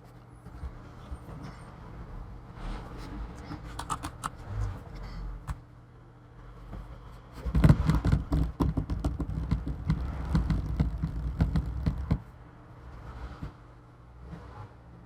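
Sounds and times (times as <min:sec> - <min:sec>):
laptop plastic clicks: 0:03.7 - 0:04.4
dull thuds on hard surface: 0:07.4 - 0:12.3.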